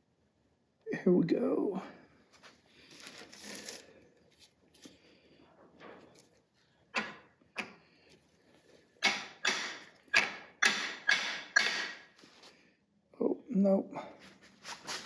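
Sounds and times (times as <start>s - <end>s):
hammer striking metal tool: 9.0s - 12.1s.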